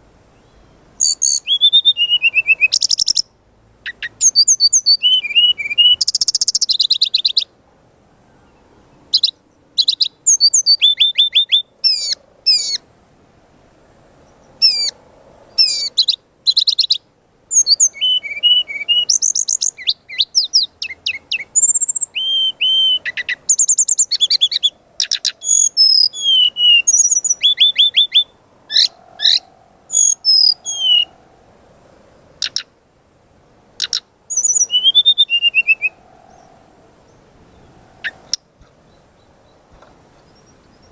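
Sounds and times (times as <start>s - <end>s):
bird singing whistles and trills: 0.4s - 3.3s, 3.9s - 7.5s, 8.4s - 12.8s, 14.4s - 31.2s, 32.4s - 32.7s, 33.8s - 36.5s.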